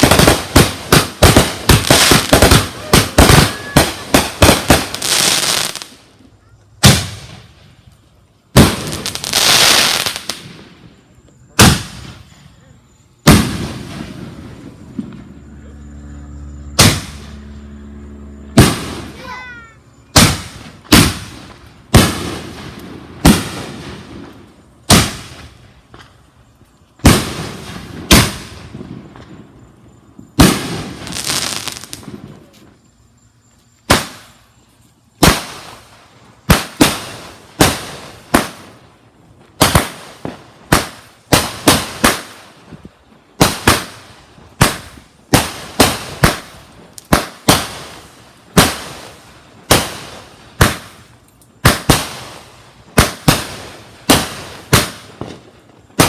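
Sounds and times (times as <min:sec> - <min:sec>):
fireworks bangs and crackle: 0:00.0 - 0:33.1, 0:33.7 - 0:56.0.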